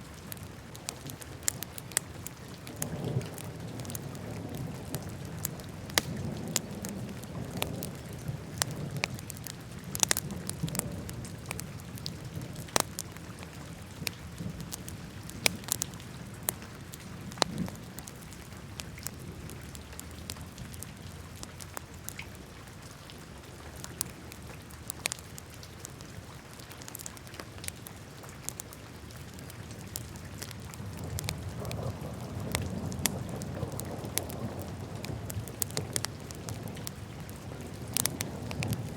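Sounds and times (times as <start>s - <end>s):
wood fire crackling and popping: 0.0s - 22.2s, 23.7s - 38.9s
rumble of flames: 0.3s - 21.9s, 29.4s - 38.9s.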